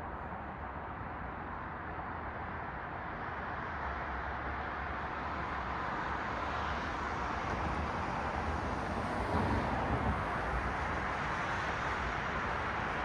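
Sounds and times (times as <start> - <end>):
road traffic hiss: 8.0 - 13.0.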